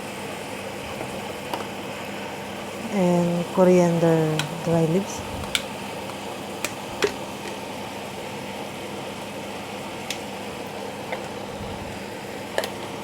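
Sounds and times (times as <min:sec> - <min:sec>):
chicken sizzling in a pan: 0:05.6 - 0:13.0.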